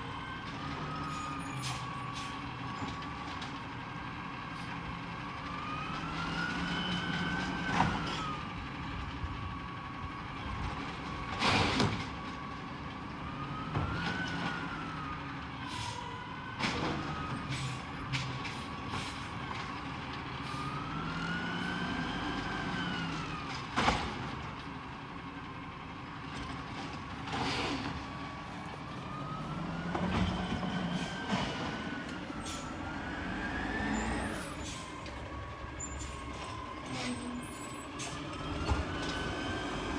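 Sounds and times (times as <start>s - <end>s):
garbage truck engine revving: 18.5s - 39.9s.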